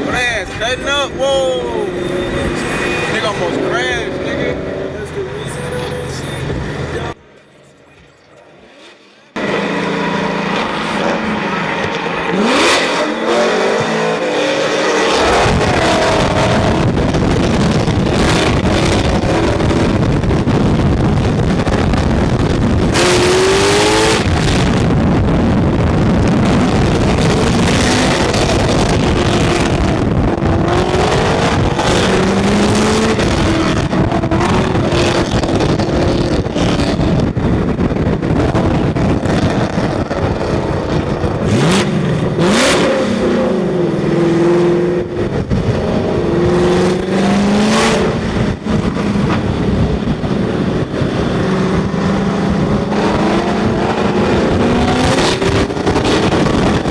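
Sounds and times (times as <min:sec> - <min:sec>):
car engines revving: 0:00.0 - 0:56.9
sudden rush of noise: 0:08.6 - 0:43.4.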